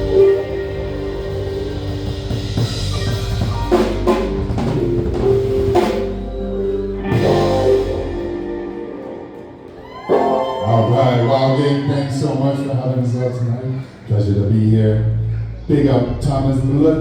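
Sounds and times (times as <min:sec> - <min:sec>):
live band playing: 0:00.0 - 0:12.7.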